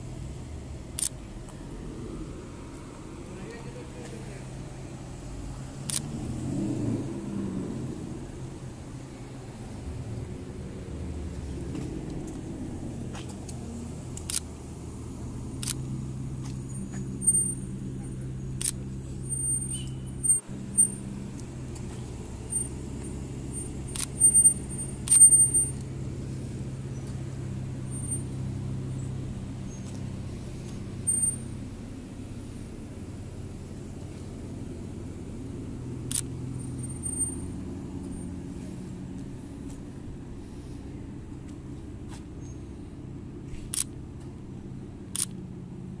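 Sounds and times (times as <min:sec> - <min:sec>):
car engines rumbling: 0:00.0 - 0:46.0
sharp clicks: 0:00.9 - 0:01.2, 0:05.8 - 0:06.1, 0:13.2 - 0:14.6, 0:15.6 - 0:17.1, 0:23.9 - 0:25.9, 0:36.0 - 0:36.4, 0:43.6 - 0:44.0, 0:45.1 - 0:45.4.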